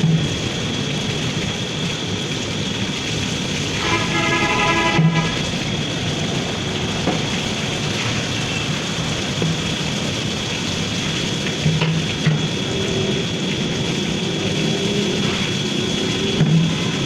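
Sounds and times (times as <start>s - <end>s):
machinery humming with high whine: 0.0s - 17.0s.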